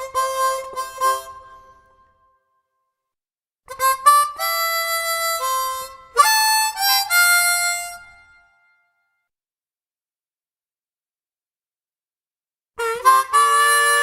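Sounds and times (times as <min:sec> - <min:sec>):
harmonica playing held notes: 0:00.0 - 0:02.0, 0:03.7 - 0:08.6, 0:12.8 - 0:14.0.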